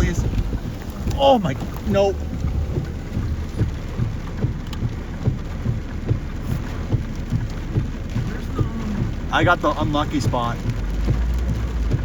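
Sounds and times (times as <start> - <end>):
low buffeting thumps: 0.0 - 12.0
rain and gusting wind: 0.0 - 12.0.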